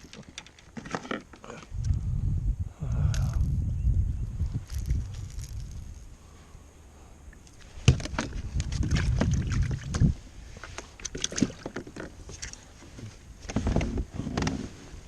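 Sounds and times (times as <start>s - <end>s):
knocks and clatter on a kayak: 0.0s - 1.4s, 7.8s - 14.8s
low wind rumble: 1.4s - 15.0s.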